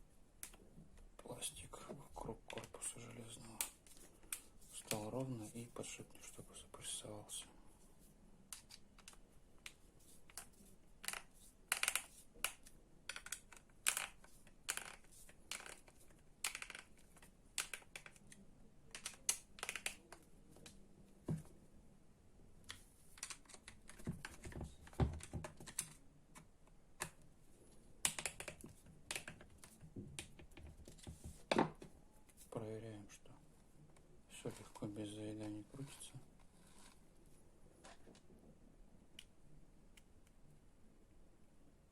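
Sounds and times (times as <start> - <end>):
plastic and metal parts clicking: 10.3 - 20.8, 22.7 - 27.2.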